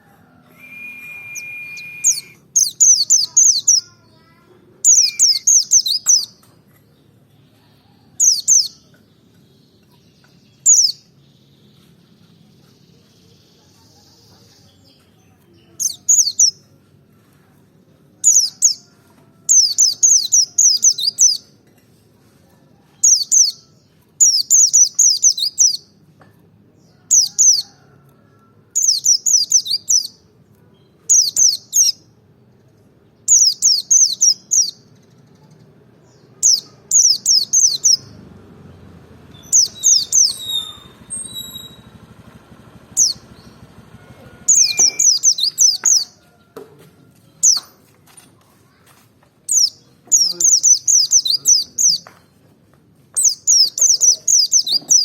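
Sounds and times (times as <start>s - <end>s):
longer whistled bird notes: 0.5s - 2.5s
bird twittering: 0.6s - 3.9s, 39.3s - 42.0s, 44.5s - 46.0s.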